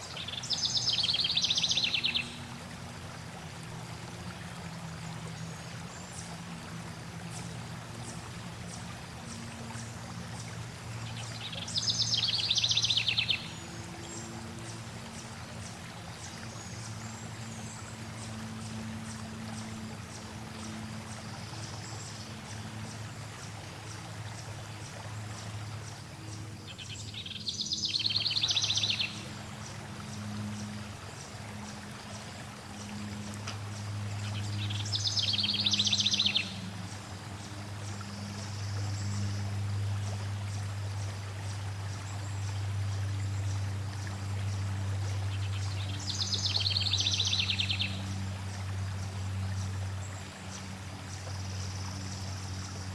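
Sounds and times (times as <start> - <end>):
loud rapid trilled birdsong: 0.0 - 2.5, 7.3 - 23.0, 25.7 - 33.2, 33.8 - 43.6, 45.3 - 48.2
flowing water: 0.0 - 52.9.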